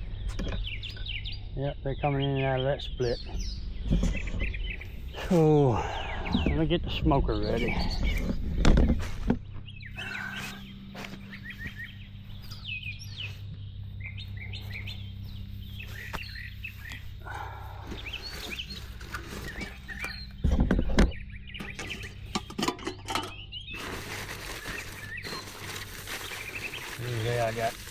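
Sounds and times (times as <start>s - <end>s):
small birds chirping: 0.0s - 27.9s
steady low hum: 0.0s - 27.9s
rustling handling noises: 17.9s - 20.3s, 21.6s - 27.9s.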